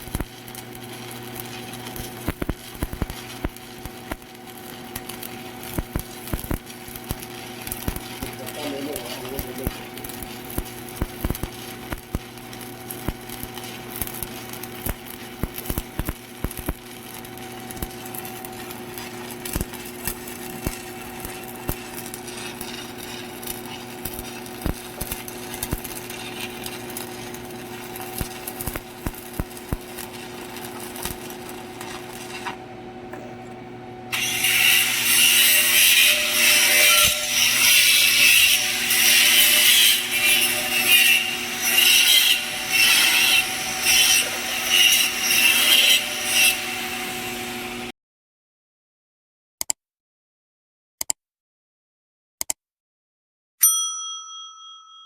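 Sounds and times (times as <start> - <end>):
arc welding crackle: 0.0 - 32.7, 34.1 - 47.9
welding machine hum: 0.0 - 47.9.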